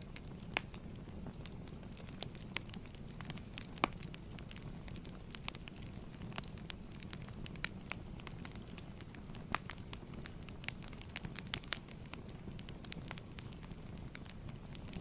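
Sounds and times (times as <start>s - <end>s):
fireplace fire crackling: 0.0s - 15.0s.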